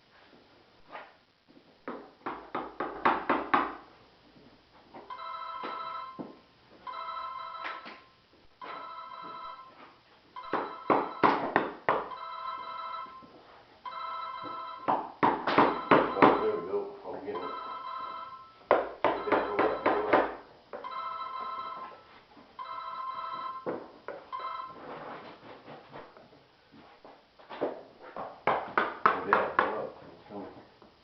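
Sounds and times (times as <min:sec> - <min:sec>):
sharp knocks and taps: 0:01.8 - 0:03.8
electronic telephone ringing: 0:05.1 - 0:06.2, 0:06.8 - 0:09.8, 0:10.4 - 0:11.4, 0:12.1 - 0:14.9, 0:15.7 - 0:16.7, 0:17.3 - 0:23.7, 0:24.3 - 0:24.8.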